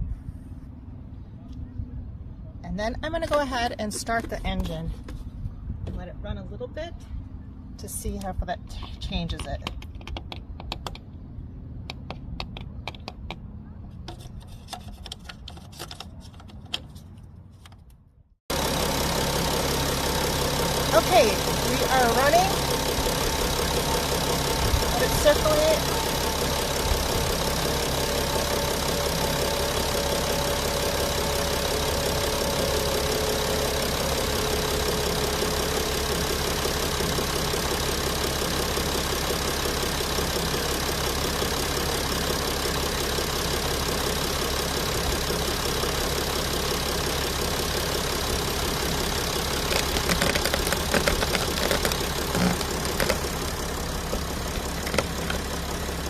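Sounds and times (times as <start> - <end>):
van engine idling: 18.5 - 56.0.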